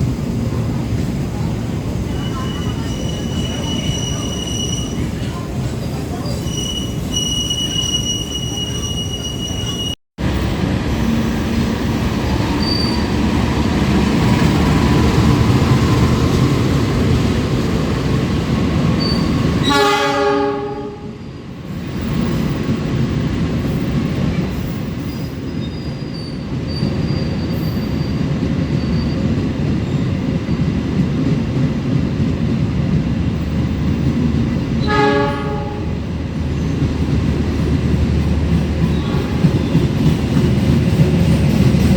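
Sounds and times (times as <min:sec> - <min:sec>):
train wheels rumbling: 0:00.0 - 0:41.9
high squeal: 0:02.1 - 0:05.1, 0:06.2 - 0:10.0, 0:12.6 - 0:13.1
train horn: 0:19.6 - 0:21.2, 0:34.8 - 0:36.0, 0:38.9 - 0:39.6.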